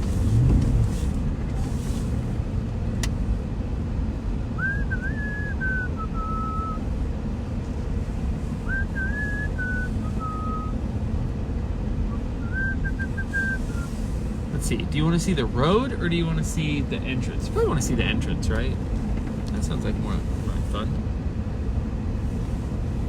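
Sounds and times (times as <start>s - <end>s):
car engine and tyres rumble: 0.0s - 23.0s
person whistling a tune: 4.6s - 6.8s, 8.7s - 10.7s, 12.4s - 13.9s.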